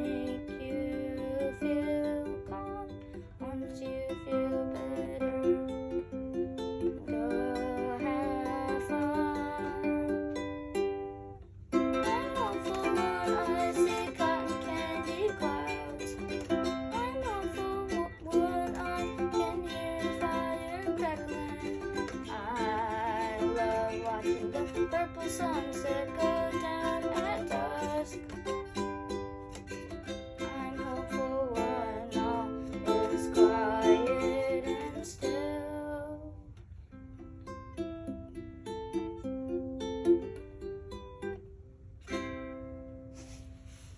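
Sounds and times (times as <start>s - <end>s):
plucked string melody: 0.0s - 43.9s.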